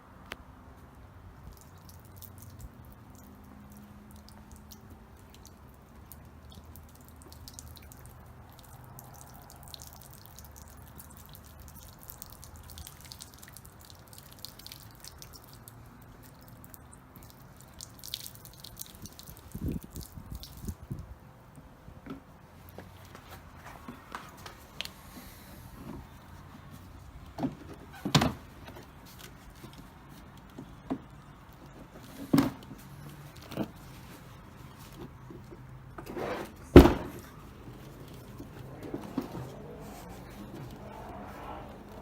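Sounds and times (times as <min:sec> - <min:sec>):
water dripping and trickling: 0:01.4 - 0:21.0, 0:28.0 - 0:36.0, 0:37.1 - 0:42.0
dull thumps: 0:36.7 - 0:42.0.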